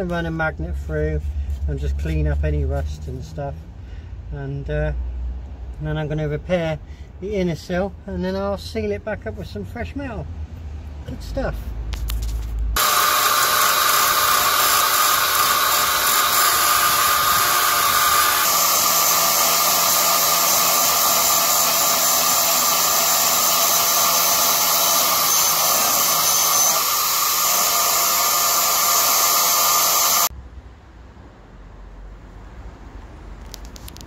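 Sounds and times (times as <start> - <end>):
electric power tool running: 12.8 - 30.3.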